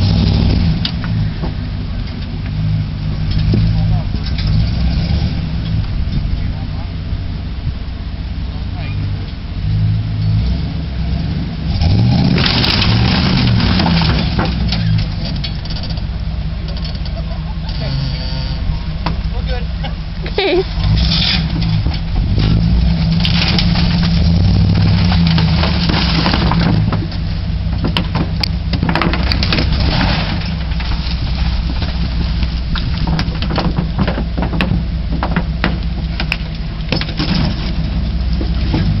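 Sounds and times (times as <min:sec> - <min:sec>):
truck engine running: 0:00.0 - 0:39.0.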